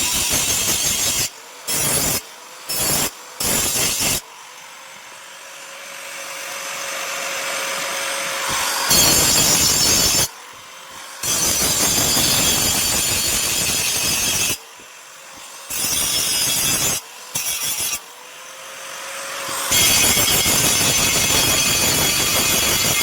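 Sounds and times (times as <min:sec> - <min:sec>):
power tool grinding steel: 0:00.0 - 0:23.0
motor whine: 0:04.3 - 0:11.8.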